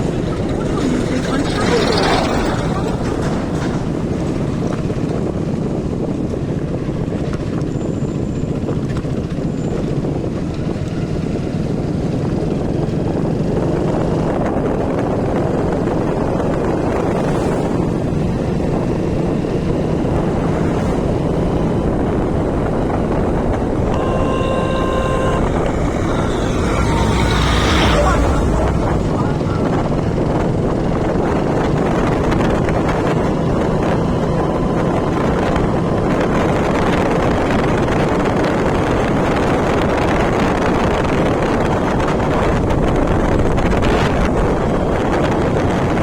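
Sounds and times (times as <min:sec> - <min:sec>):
vehicle engine and road noise: 0:00.0 - 0:46.0
wind on microphone: 0:00.0 - 0:46.0
vehicle horn: 0:23.2 - 0:30.0.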